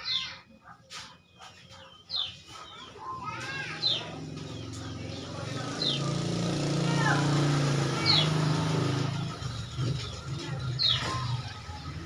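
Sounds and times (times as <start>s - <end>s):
bird calling: 8.0s - 12.0s.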